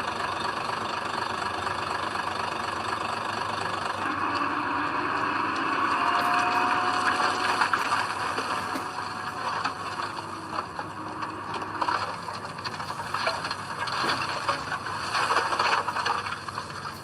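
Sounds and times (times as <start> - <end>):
bulldozer engine running: 0.0 - 17.0
track clicks and rattles: 0.3 - 17.0.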